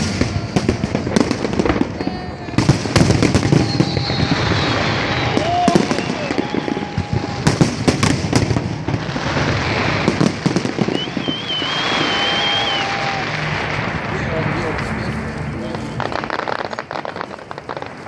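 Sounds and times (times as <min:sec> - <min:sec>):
fireworks crackling and banging: 0:00.0 - 0:18.0
fireworks whistling: 0:00.0 - 0:18.0
high warbling whistle: 0:10.8 - 0:13.2.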